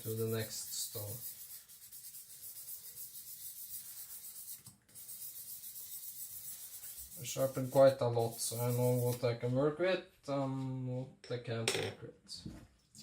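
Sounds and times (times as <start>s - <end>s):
rubbing on a whetstone: 0.0s - 9.2s.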